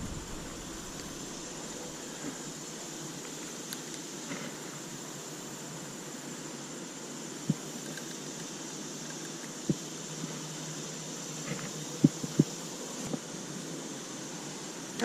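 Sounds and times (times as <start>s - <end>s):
short low thumps: 0.0s - 1.5s
wind on microphone: 0.0s - 1.9s.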